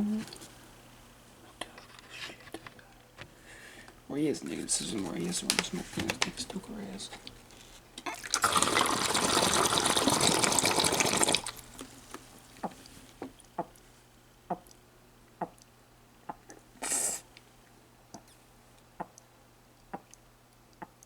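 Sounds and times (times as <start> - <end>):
water pouring: 8.0 - 12.1
water dripping: 8.0 - 13.9, 14.5 - 16.7, 18.0 - 21.0
short hiss: 16.8 - 17.3.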